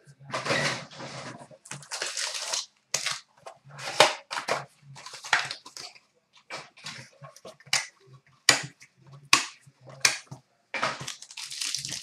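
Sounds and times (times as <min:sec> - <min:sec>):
plastic and cardboard tearing: 0:01.7 - 0:05.9, 0:10.9 - 0:12.0.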